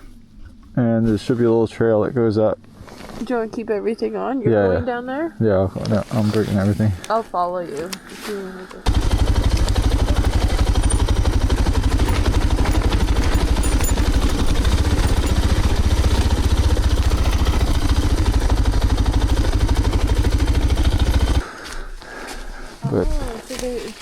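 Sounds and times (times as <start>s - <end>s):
motorcycle engine running: 8.8s - 21.4s.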